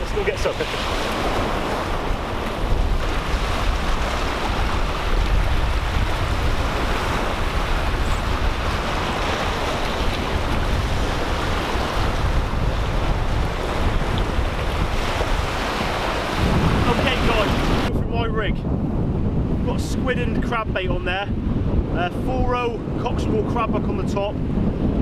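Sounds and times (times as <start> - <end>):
waves breaking on rocks: 0.0 - 17.9
wind buffeting microphone: 0.0 - 25.0.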